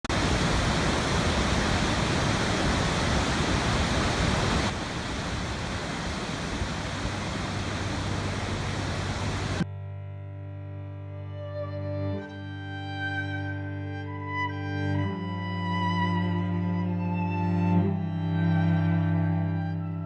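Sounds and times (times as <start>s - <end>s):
running water rushing: 0.0s - 9.6s
slow bowed string music: 7.8s - 20.0s.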